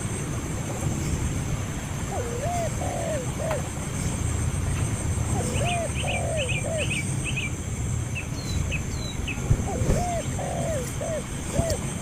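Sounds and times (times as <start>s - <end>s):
bird low arched calls: 2.0s - 3.7s, 5.3s - 7.5s, 9.0s - 12.0s.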